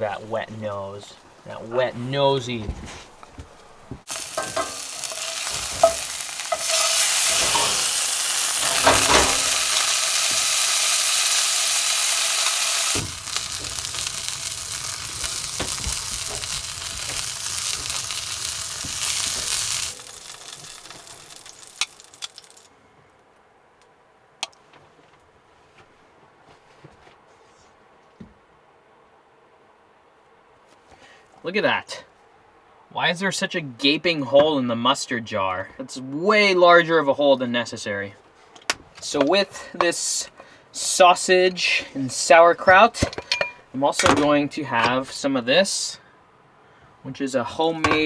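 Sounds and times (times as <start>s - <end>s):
sausages sizzling in a frying pan: 0.0s - 22.7s.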